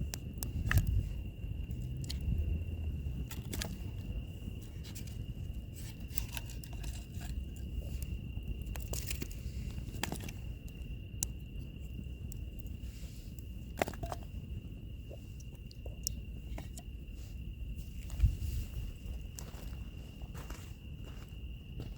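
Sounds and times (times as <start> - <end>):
wood fire crackling and popping: 0.0 - 14.8
insect trill: 0.0 - 21.9
low steady rumble: 0.0 - 21.9.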